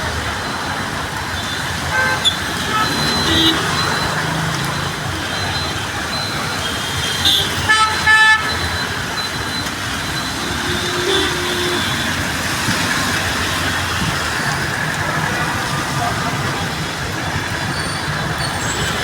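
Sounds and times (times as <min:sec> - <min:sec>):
traffic on wet street: 0:00.0 - 0:19.0
vehicle horn double toot: 0:10.4 - 0:12.1.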